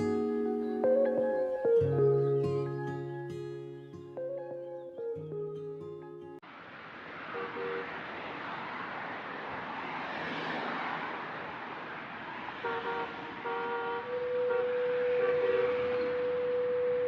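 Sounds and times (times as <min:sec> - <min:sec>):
sustained horn-like tones: 0:12.7 - 0:17.0.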